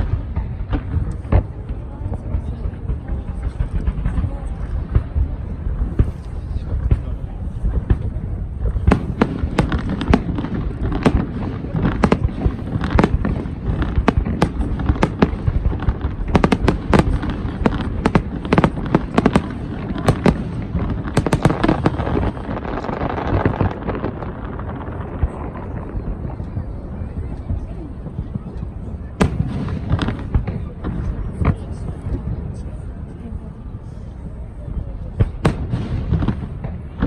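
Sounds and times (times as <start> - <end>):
fireworks bursting and banging: 0.0 - 37.0.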